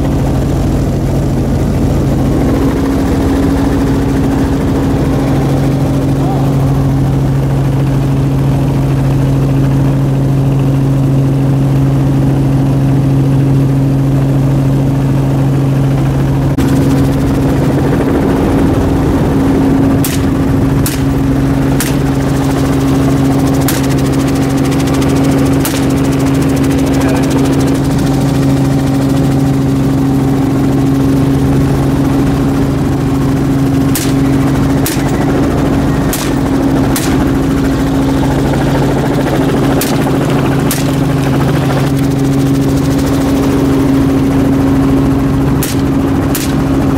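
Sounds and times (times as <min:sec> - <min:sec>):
helicopter drone: 0:00.0 - 0:46.9
short sharp cracks: 0:20.0 - 0:21.2, 0:21.8 - 0:22.1, 0:33.9 - 0:34.2, 0:45.6 - 0:46.6.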